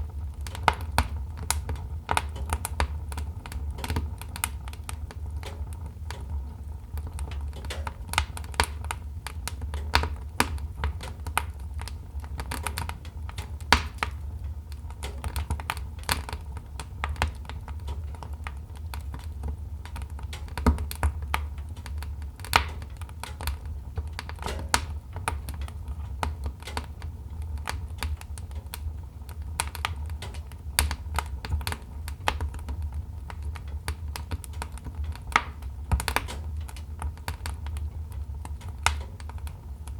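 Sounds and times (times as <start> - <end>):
low steady rumble: 0.0 - 39.9
wood fire crackling: 0.0 - 39.9.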